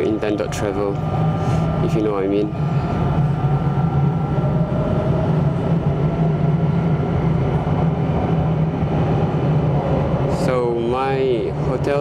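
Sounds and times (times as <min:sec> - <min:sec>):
faint high whining tones: 0:00.0 - 0:06.7
steady hum: 0:00.0 - 0:12.0
train running rumble: 0:00.0 - 0:12.0.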